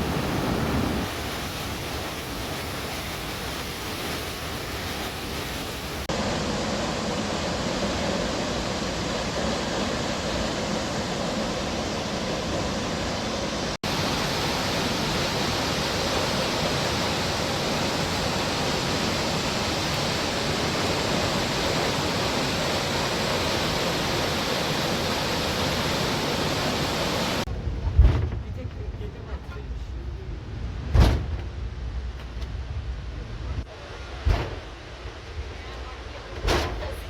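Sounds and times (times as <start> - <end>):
waterfall rushing: 0.0 - 27.5.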